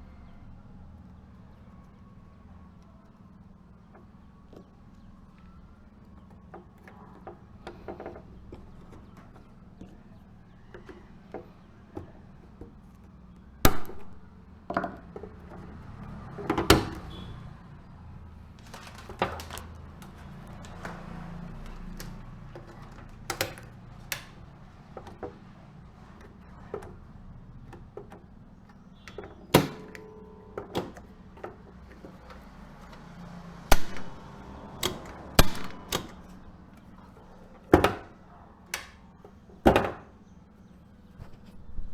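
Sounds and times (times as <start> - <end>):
sharp clicks and knocks: 27.7 - 38.1.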